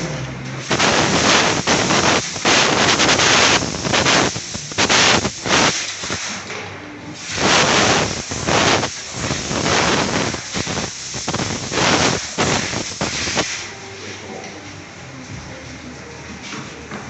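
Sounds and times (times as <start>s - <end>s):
air blow gun hissing bursts: 0.6s - 6.5s, 7.2s - 13.9s.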